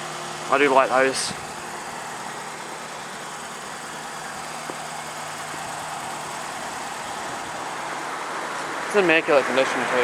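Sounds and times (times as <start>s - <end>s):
traffic on busy road: 0.0s - 10.0s.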